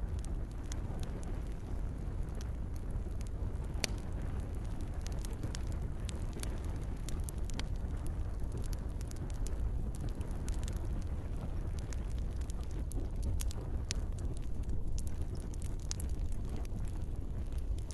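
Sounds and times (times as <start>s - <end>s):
campfire crackling: 0.0s - 17.9s.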